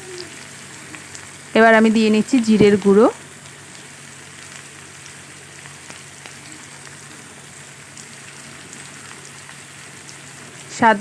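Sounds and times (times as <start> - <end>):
leaves sizzling in oil: 0.0 - 11.0
faint small crackles: 3.4 - 7.2.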